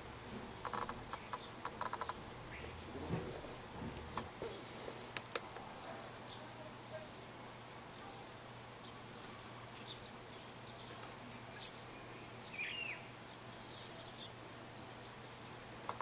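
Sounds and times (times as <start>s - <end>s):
low steady hum: 0.0s - 15.8s
distant small bird chirps: 0.5s - 3.0s.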